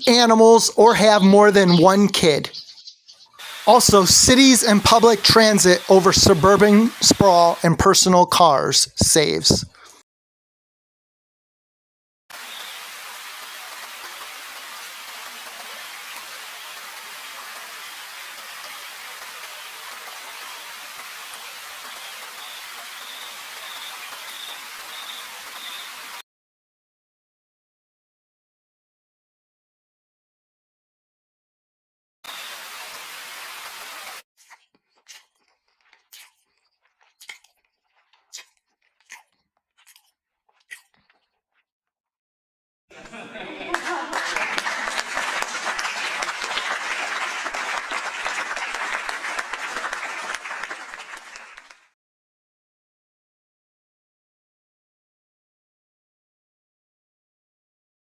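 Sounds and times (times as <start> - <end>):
steady hiss: 3.4 - 9.9, 12.4 - 26.2, 32.3 - 34.2.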